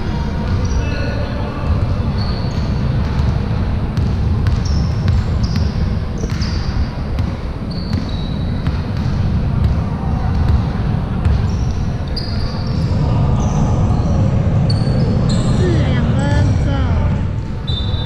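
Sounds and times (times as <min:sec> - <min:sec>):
low rumble of gym noise: 0:00.0 - 0:18.0
basketball bouncing: 0:02.8 - 0:11.6
sneakers squeaking on court: 0:04.0 - 0:13.0.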